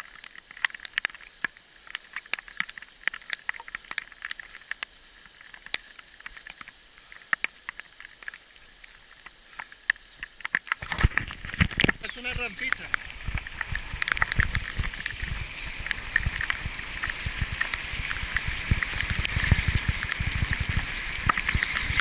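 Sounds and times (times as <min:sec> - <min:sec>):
gravel crunching: 0:10.8 - 0:22.0.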